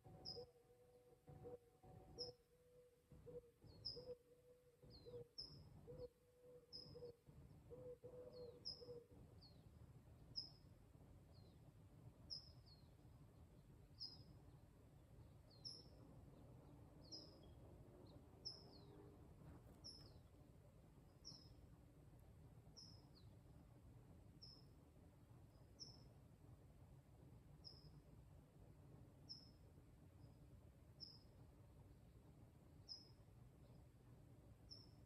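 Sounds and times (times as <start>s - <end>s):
bird chirping: 0.0s - 10.6s, 11.3s - 11.6s, 12.3s - 13.0s, 13.9s - 14.4s, 15.2s - 20.4s, 21.1s - 21.6s, 22.7s - 23.4s, 24.4s - 24.7s, 25.5s - 26.1s, 27.6s - 28.0s, 32.8s - 33.8s, 34.6s - 35.0s.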